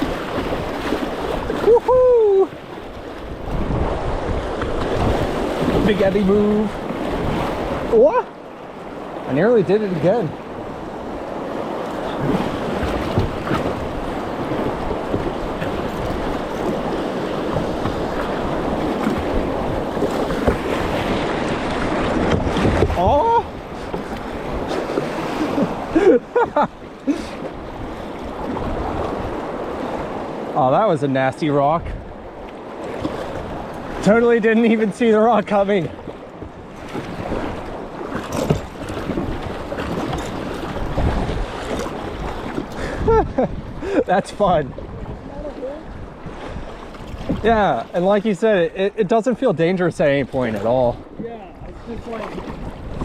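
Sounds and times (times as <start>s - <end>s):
whitewater rapids rushing: 0.0s - 8.5s
small water splashes: 0.0s - 26.2s, 32.1s - 48.4s, 50.0s - 53.0s
wind buffeting microphone: 0.0s - 30.5s, 35.1s - 48.9s, 49.9s - 53.0s.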